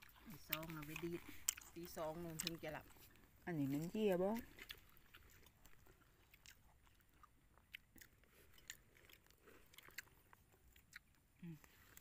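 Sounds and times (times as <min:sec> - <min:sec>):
person chewing something crisp: 0:00.0 - 0:12.0.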